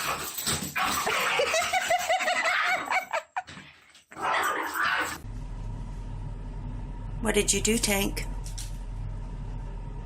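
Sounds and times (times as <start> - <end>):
person laughing: 1.3 - 3.5.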